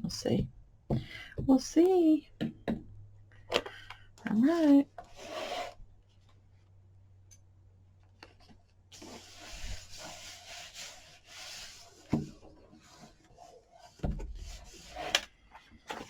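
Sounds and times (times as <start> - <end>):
paper rubbing on a surface: 5.1 - 5.8, 9.0 - 15.2.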